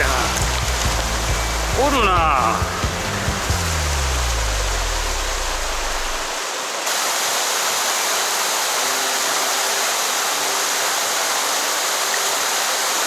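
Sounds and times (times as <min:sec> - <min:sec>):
low background music tone: 0:00.0 - 0:06.5
stream flowing over rocks: 0:00.0 - 0:13.0.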